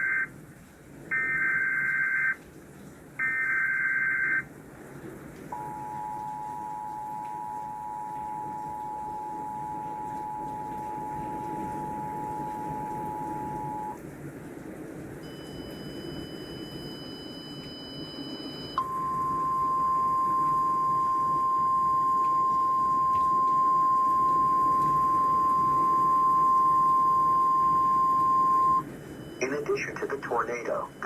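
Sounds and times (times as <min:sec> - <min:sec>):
steady warning alarm tone: 0:00.0 - 0:00.4, 0:01.1 - 0:02.4, 0:03.2 - 0:04.5, 0:05.5 - 0:14.0, 0:15.2 - 0:31.0
low static hum: 0:00.0 - 0:31.0
two-tone attention signal: 0:05.6 - 0:14.0, 0:15.2 - 0:31.0.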